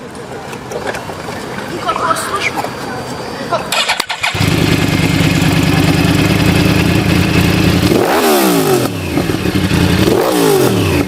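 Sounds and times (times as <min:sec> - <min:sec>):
motorcycle engine idling and revving: 0:03.7 - 0:11.0.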